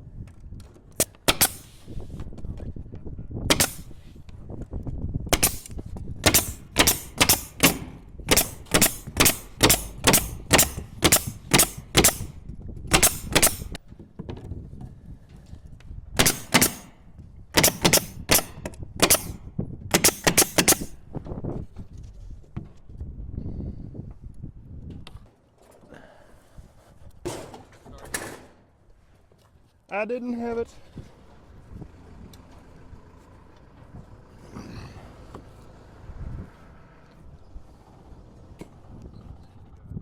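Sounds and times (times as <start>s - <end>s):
nail gun firing into wood: 0.9s - 2.0s, 3.5s - 4.1s, 5.3s - 13.8s, 16.2s - 21.0s.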